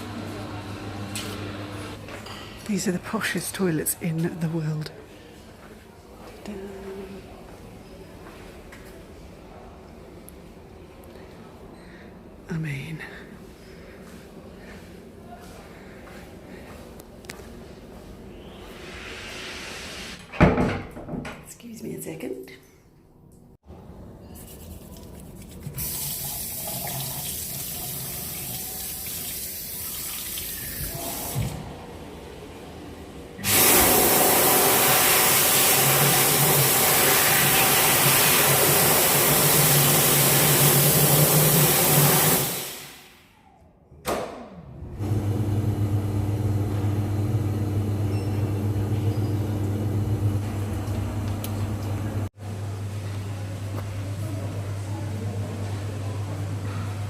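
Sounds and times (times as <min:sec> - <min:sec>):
toilet flushing: 0:25.7 - 0:31.6, 0:33.4 - 0:43.1
steady low hum: 0:45.0 - 0:57.0
taps running: 0:48.2 - 0:52.3.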